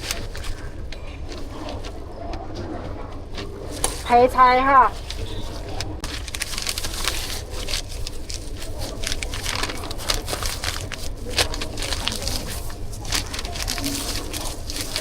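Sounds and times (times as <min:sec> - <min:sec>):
food being scooped and packed: 0:04.9 - 0:15.0.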